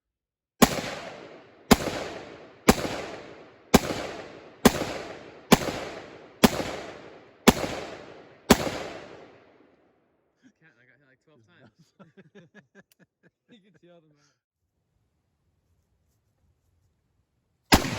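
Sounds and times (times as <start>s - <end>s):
gunshots: 0.6s - 9.7s.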